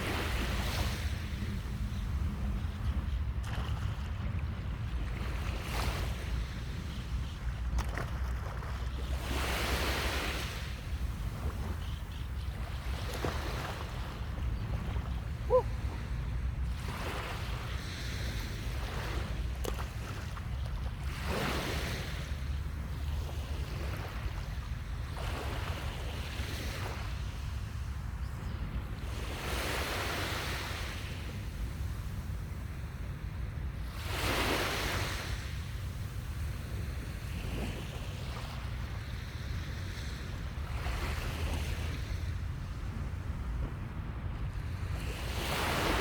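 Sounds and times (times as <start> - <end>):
sea waves washing up a beach: 0.0 - 46.0
wind rumble on microphone: 0.0 - 46.0.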